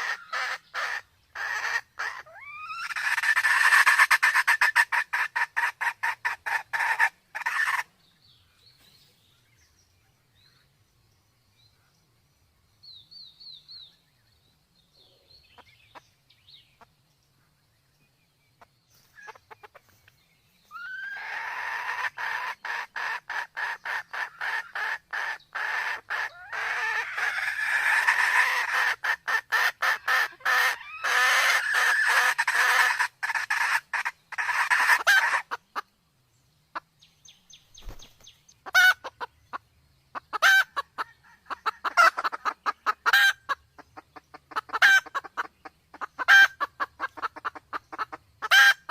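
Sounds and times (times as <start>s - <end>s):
junglefowl clucking and cackling: 0.0s - 7.9s, 18.6s - 20.0s, 20.7s - 35.9s, 38.6s - 48.9s
faint high bird chirps: 7.4s - 23.0s, 34.0s - 48.9s.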